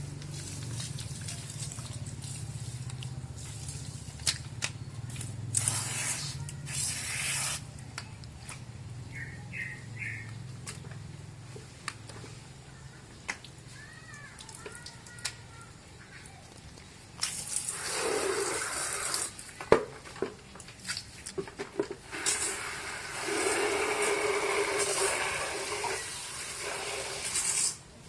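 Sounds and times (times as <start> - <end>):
water splashing and dripping: 0.0 - 7.6, 13.2 - 19.7
bursts of water spray: 0.0 - 7.8, 17.2 - 19.6, 22.0 - 27.9.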